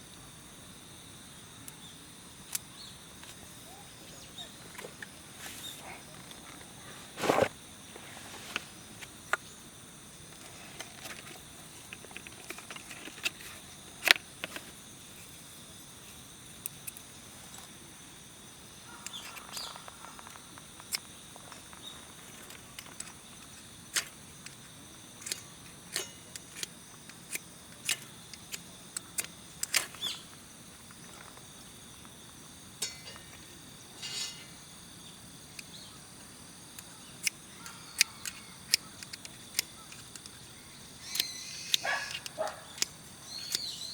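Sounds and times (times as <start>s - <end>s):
high-pitched insect drone: 17.0s - 43.9s.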